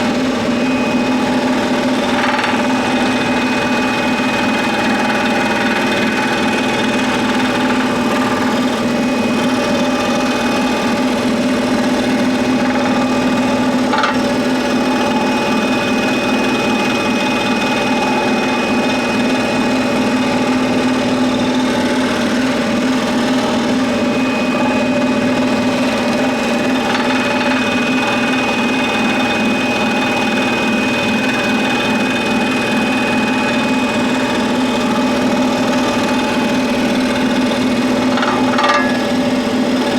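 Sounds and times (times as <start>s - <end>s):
scroll saw cutting wood: 0.0s - 39.9s.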